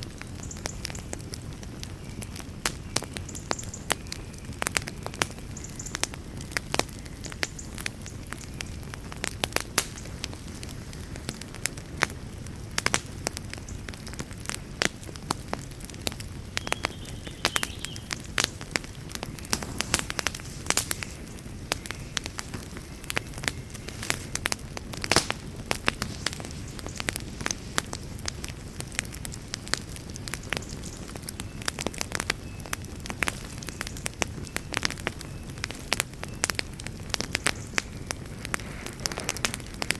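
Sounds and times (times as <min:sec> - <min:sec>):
campfire popping and crackling: 0:00.0 - 0:39.9
soft low fire rush: 0:08.3 - 0:35.7, 0:36.8 - 0:39.9.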